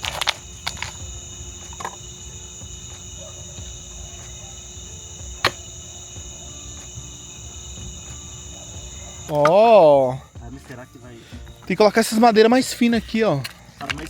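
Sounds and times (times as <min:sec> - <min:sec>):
night insects chirring: 0:00.0 - 0:14.0.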